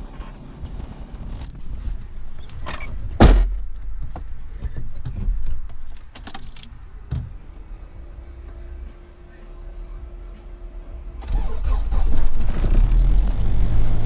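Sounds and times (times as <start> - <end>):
low steady rumble: 0.0 - 14.0
loud sharp thump: 3.1 - 4.2.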